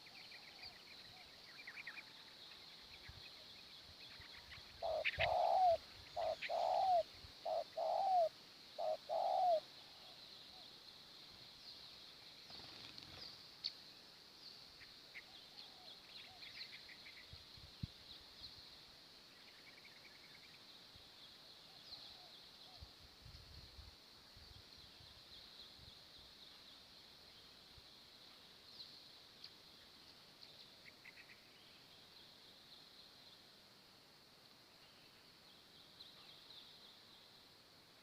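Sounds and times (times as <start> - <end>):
faint small bird chirps: 0.0 - 23.8, 24.4 - 33.6
dove cooing: 4.8 - 9.7.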